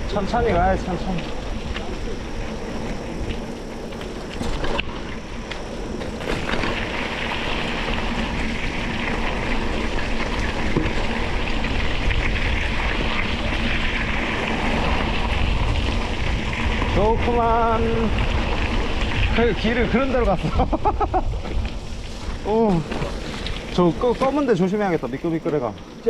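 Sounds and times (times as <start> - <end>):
bike rattling: 0.0 - 26.0
wind buffeting microphone: 6.1 - 26.0.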